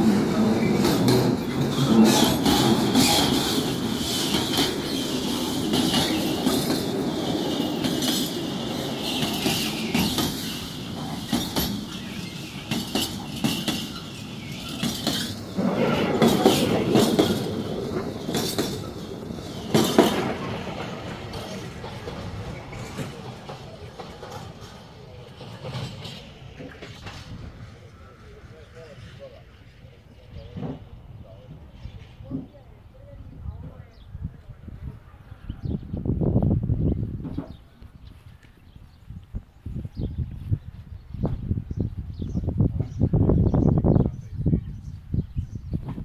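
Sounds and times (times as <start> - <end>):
wheels clanking over rails: 0.0 - 27.8
freight train wagons rolling: 0.0 - 32.9.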